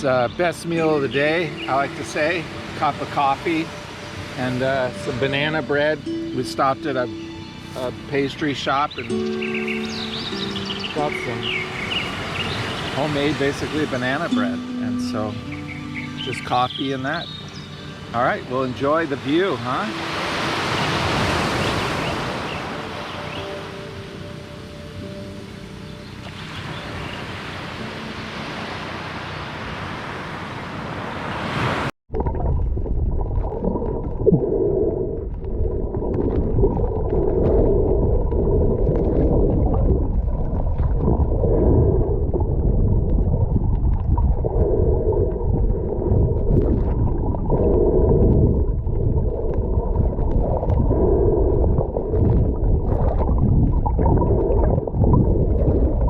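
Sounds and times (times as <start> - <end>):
surf hissing: 0.6 - 31.9
muffled water sloshing: 0.7 - 30.3, 32.1 - 56.0.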